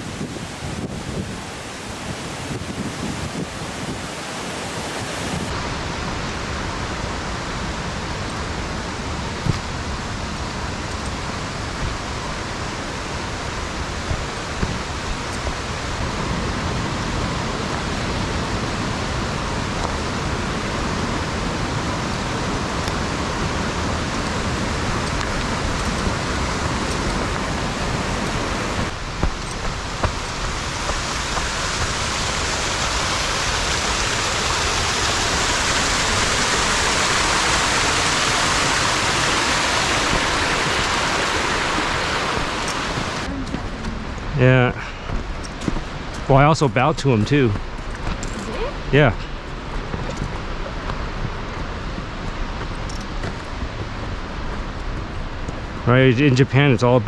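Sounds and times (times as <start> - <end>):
waterfall rushing: 0.0 - 47.8.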